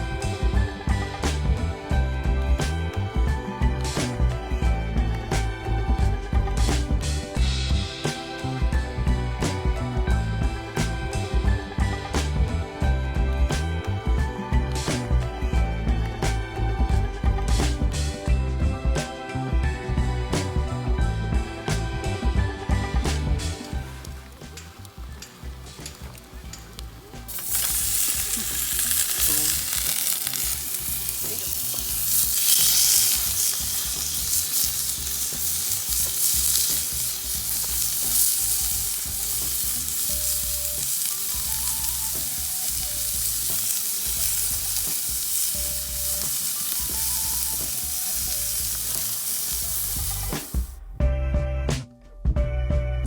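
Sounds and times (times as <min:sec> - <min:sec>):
food sizzling in a pan: 0:00.0 - 0:01.8, 0:06.6 - 0:12.6, 0:22.7 - 0:50.8.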